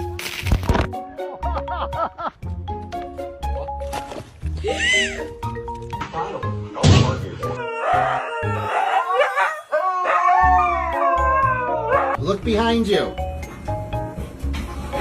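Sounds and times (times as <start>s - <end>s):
dog howling: 7.5s - 12.2s.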